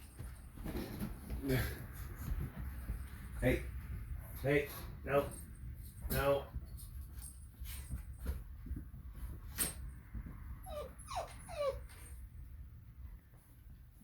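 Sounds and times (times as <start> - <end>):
puppy crying: 10.6 - 12.0.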